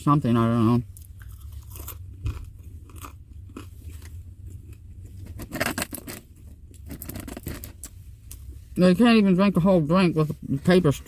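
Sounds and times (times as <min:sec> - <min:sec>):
steady low hum: 0:00.0 - 0:11.0
crunchy food being chewed: 0:00.9 - 0:07.7.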